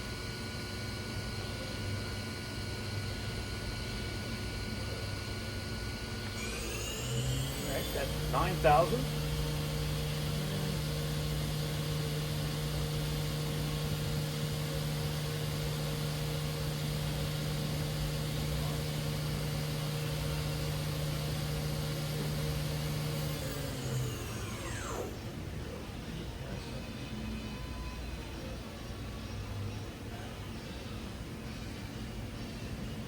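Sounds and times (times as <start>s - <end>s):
machine spindle humming: 0.0s - 25.8s.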